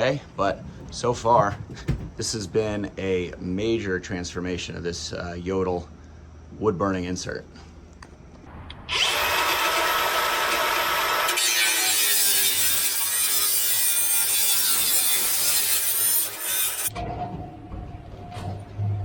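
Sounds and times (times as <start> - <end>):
power saw cutting: 8.9 - 16.9.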